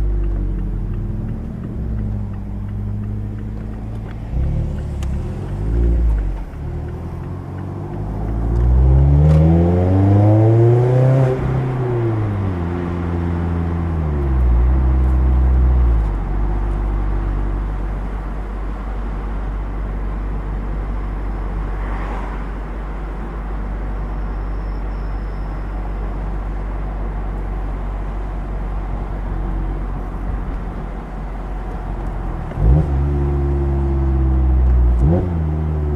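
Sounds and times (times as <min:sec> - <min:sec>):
car engine revving: 0:00.0 - 0:17.4, 0:32.0 - 0:35.9.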